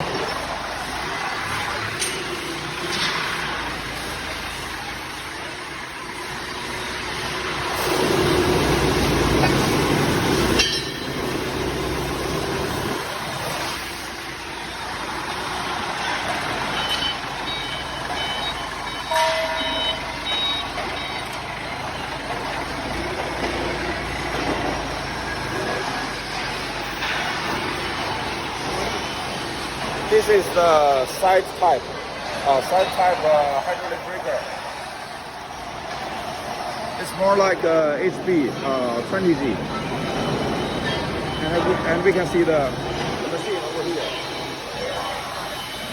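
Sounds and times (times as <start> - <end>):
factory machinery noise: 0.0 - 45.9
short high beeps: 16.7 - 21.4.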